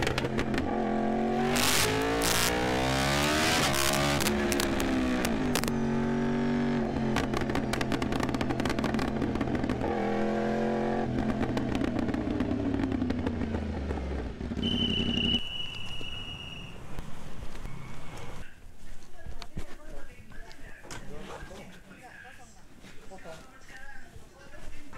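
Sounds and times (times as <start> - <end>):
motorcycle engine revving high: 0.0 - 17.0.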